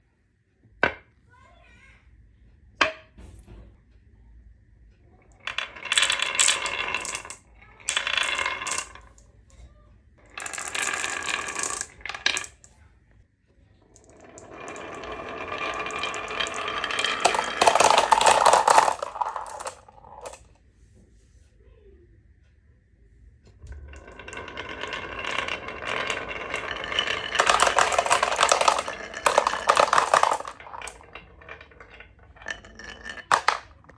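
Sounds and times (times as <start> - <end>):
marbles clattering down a run: 5.3 - 9.2, 10.2 - 12.7, 13.9 - 20.4, 23.6 - 33.9.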